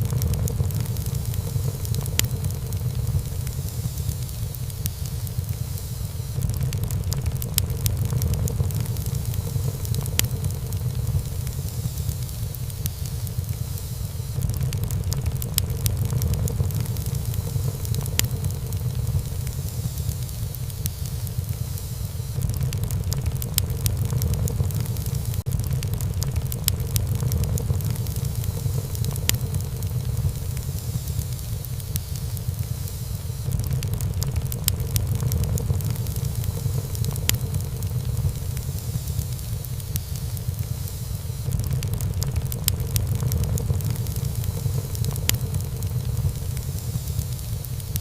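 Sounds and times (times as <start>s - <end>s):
low rumble of flames: 0.0s - 48.0s
wood fire crackling: 0.0s - 48.0s.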